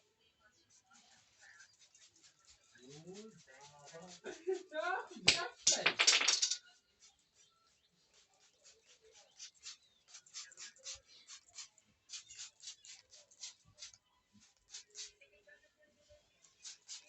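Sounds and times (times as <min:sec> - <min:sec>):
faint scratchy rubbing: 0:00.4 - 0:05.6.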